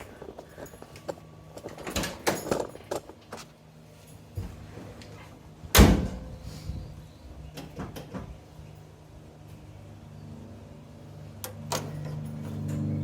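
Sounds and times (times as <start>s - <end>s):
handling knocks and rattles: 0.0s - 5.2s.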